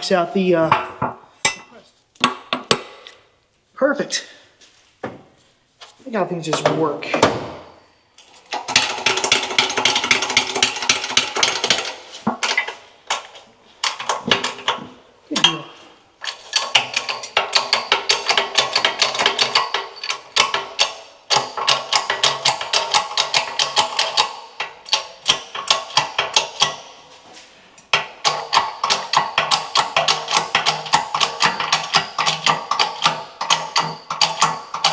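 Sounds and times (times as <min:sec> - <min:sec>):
pneumatic tool hammering: 0:15.4 - 0:27.0, 0:28.0 - 0:34.9.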